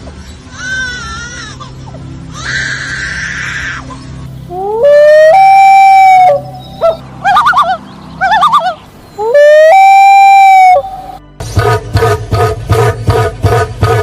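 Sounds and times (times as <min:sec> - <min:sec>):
rising bird calls: 0:02.4 - 0:11.7
bird warbling: 0:04.5 - 0:11.7.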